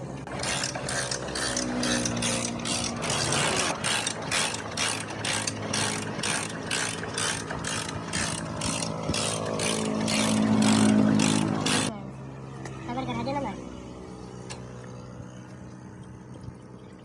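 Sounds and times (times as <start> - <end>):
fast mechanical clicking: 0.3 - 11.9
motorcycle engine running: 0.3 - 12.0.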